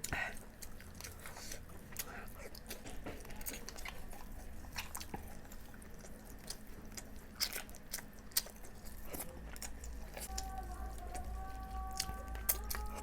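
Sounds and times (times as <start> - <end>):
chewing and mouth sounds: 0.0 - 13.0.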